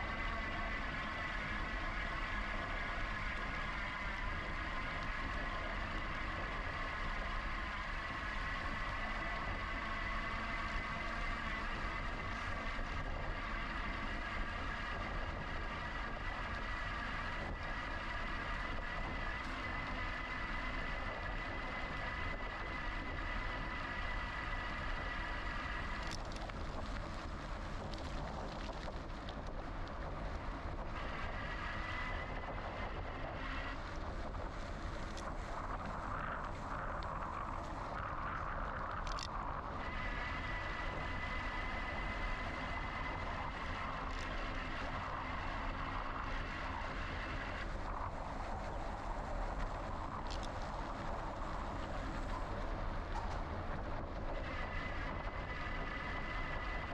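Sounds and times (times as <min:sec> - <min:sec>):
bike tyre noise: 0:00.0 - 0:56.9
electric motor whine: 0:00.0 - 0:56.9
wind on microphone: 0:00.0 - 0:56.9.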